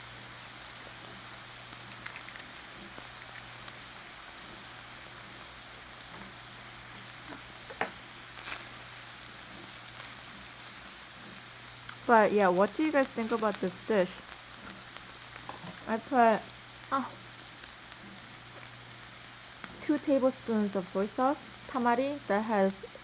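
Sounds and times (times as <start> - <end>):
steady hiss: 0.0 - 23.0
faint chewing crunches: 0.9 - 4.9, 5.5 - 12.1, 12.8 - 15.9, 16.5 - 19.9.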